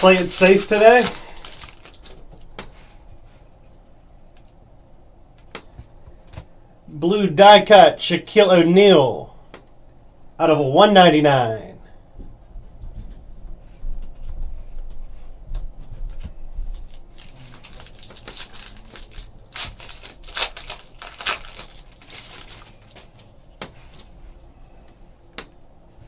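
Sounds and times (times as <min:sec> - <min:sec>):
card pack wrappers tearing: 0:00.0 - 0:02.2, 0:16.9 - 0:23.3
cards rustling: 0:00.0 - 0:02.7, 0:16.8 - 0:24.2.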